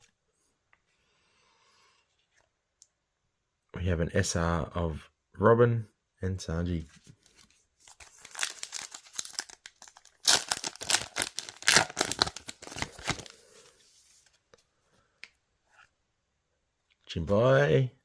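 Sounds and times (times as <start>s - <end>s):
wrapper tearing and crinkling: 7.9s - 13.4s.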